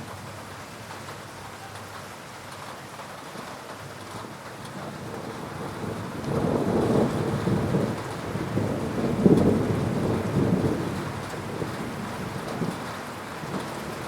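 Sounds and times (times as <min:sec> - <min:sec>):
heavy rain: 0:00.0 - 0:14.0
rolling thunder: 0:04.5 - 0:14.0.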